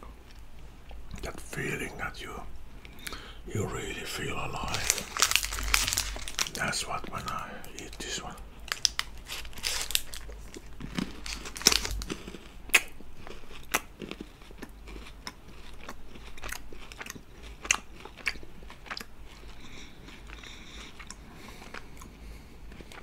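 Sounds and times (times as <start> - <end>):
crunching chocolate wafer: 2.9 - 23.0.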